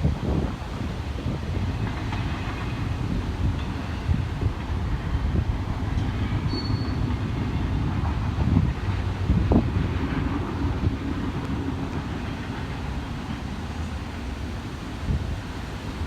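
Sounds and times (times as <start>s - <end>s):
freight train rumbling on track: 0.0s - 16.0s
high-pitched wheel squeal: 6.4s - 7.1s.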